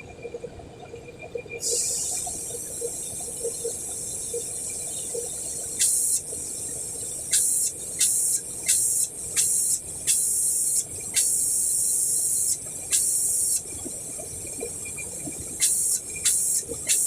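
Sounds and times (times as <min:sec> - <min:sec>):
short bursts of spray hiss: 0:05.8 - 0:06.3, 0:07.3 - 0:13.6, 0:15.6 - 0:17.0
spray hissing: 0:05.8 - 0:06.3, 0:07.3 - 0:13.6, 0:15.6 - 0:17.0.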